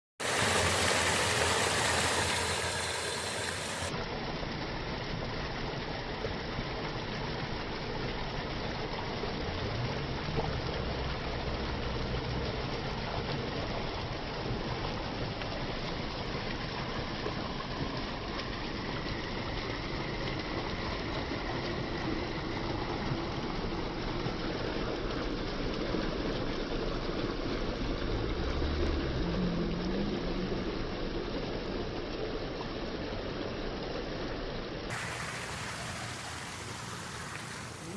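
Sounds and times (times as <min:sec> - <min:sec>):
water running: 0:00.2 - 0:04.0, 0:34.9 - 0:37.9.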